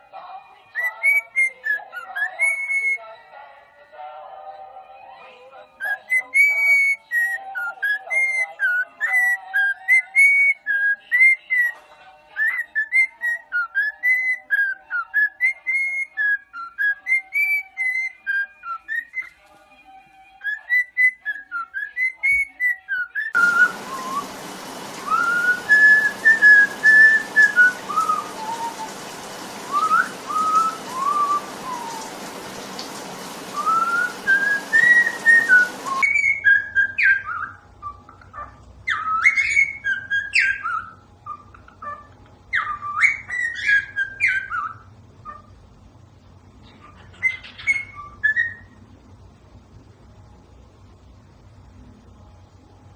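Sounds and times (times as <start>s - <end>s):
bird whistling: 0.8s - 3.0s, 20.5s - 38.0s, 38.9s - 41.5s, 47.1s - 48.8s
steady hiss: 23.4s - 36.0s.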